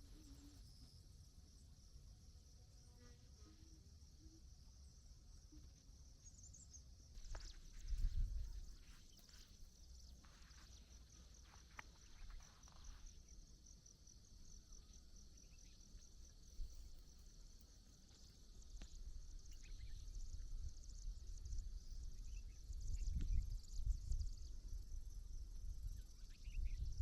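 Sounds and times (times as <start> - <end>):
insects chirring: 0.0 - 1.9, 3.0 - 27.0.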